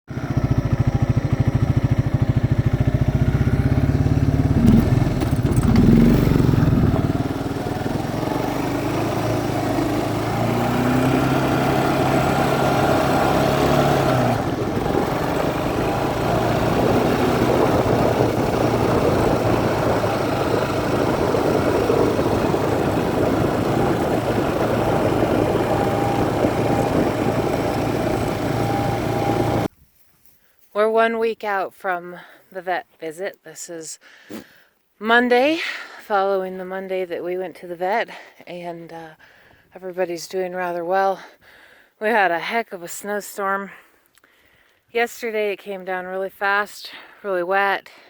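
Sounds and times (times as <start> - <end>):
tractor engine running: 0.1 - 29.7.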